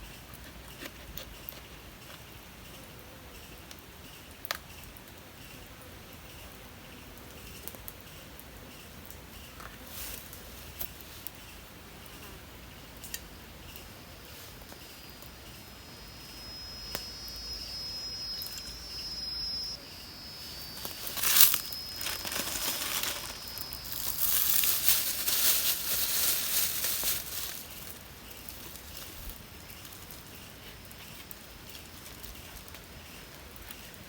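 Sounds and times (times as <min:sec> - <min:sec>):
rustling and crinkling: 0:09.6 - 0:11.4, 0:20.2 - 0:34.0
thin high whine: 0:13.1 - 0:27.9.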